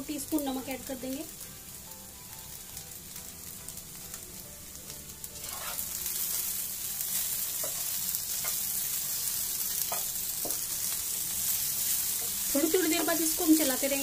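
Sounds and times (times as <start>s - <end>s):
food sizzling in hot oil: 0.0s - 14.0s
wooden spatula scraping pan: 5.4s - 5.9s.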